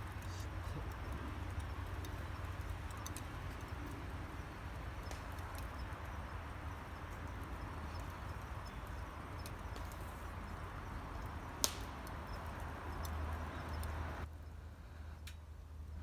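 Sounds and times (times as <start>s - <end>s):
campfire hissing and crackling: 0.0s - 14.3s
sharp pop of burning wood: 5.0s - 14.0s.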